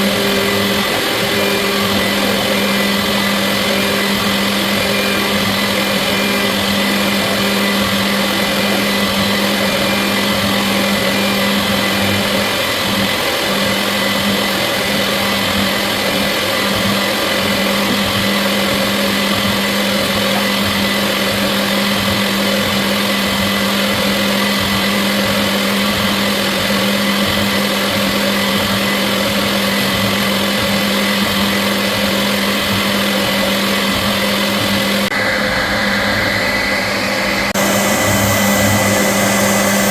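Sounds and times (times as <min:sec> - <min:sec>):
milling machine motor whine: 0:00.0 - 0:39.9
low hum: 0:35.1 - 0:39.9.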